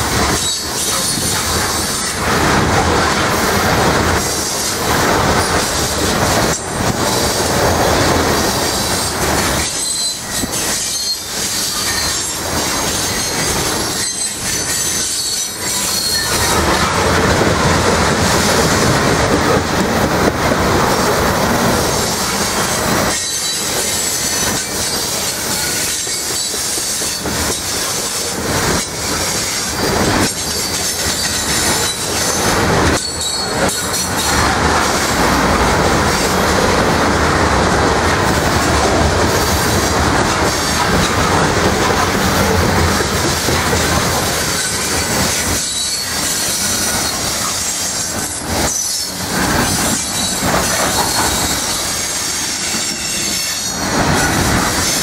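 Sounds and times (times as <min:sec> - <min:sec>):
steel wheels clattering over rails: 0:00.0 - 0:55.0
high wheel squeal: 0:00.2 - 0:02.2, 0:08.4 - 0:16.9, 0:22.0 - 0:35.2, 0:44.4 - 0:55.0.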